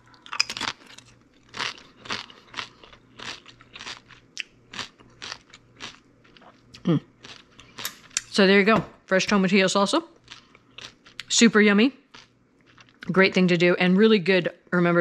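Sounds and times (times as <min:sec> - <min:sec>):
chip crunching while chewed: 0:00.0 - 0:08.3, 0:10.1 - 0:11.4, 0:12.1 - 0:13.1.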